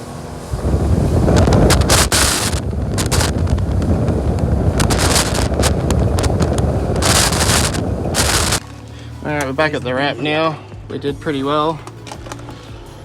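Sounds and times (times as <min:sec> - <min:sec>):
boat engine and hull rumble: 0:00.0 - 0:10.5
wind buffeting microphone: 0:00.2 - 0:08.6.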